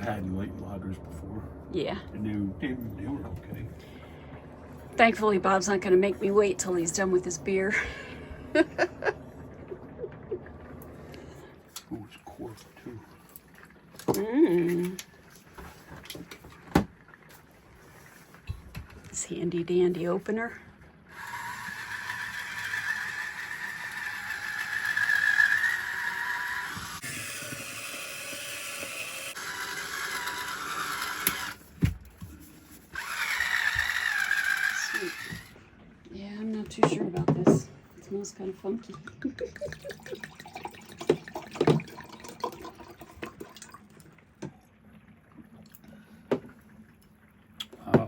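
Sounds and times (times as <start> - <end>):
electric wine opener motor whirring: 21.1 - 31.7, 32.9 - 35.6
wine glugging into a glass: 38.9 - 43.8.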